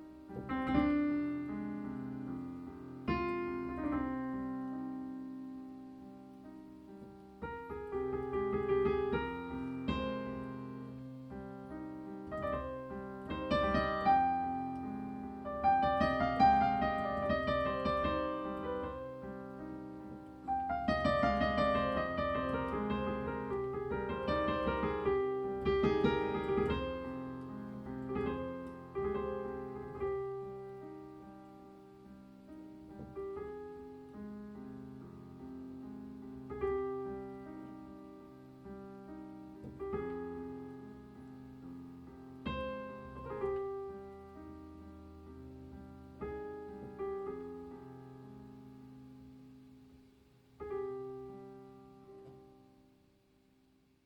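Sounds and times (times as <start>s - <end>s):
solo piano music: 0.0s - 54.0s.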